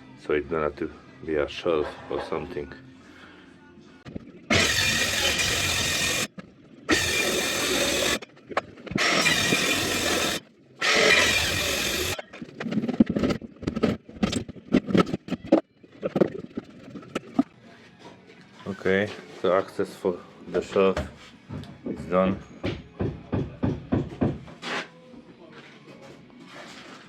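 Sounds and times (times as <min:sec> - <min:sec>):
power saw cutting wall board: 0:04.5 - 0:06.3, 0:06.9 - 0:08.2, 0:08.9 - 0:12.2
knocks and scraping of board: 0:11.0 - 0:17.5.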